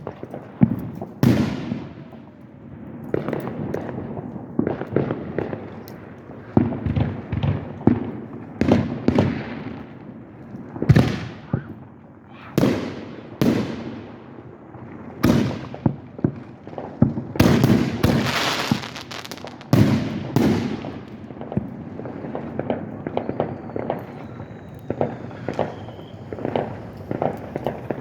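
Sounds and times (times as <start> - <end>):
fireworks bangs: 0.0 - 28.0
fireworks crackling pops: 0.0 - 28.0
faint falling whistle: 23.1 - 27.7.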